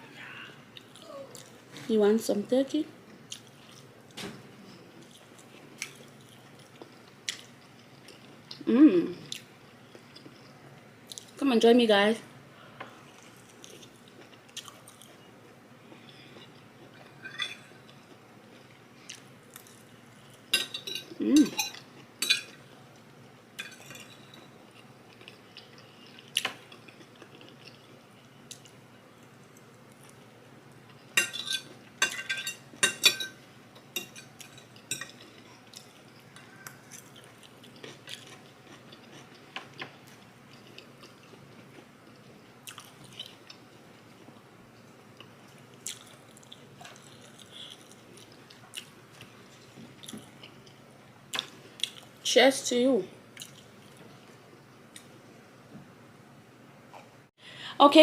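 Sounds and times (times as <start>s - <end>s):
chewing: 13.0s - 15.2s, 23.6s - 28.8s, 33.8s - 44.4s, 45.2s - 52.1s, 53.4s - 55.1s
cutlery clinking on a plate: 17.1s - 17.7s, 20.6s - 22.6s, 31.2s - 35.3s.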